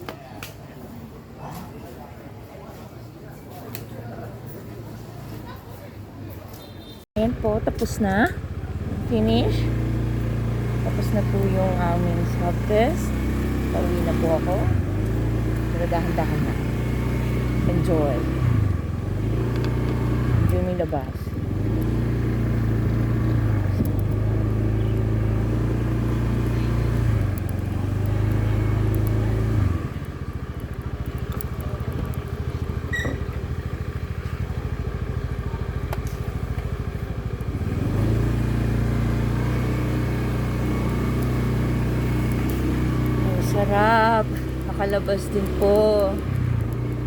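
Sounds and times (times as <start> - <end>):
motorbike engine humming: 6.6 - 47.0.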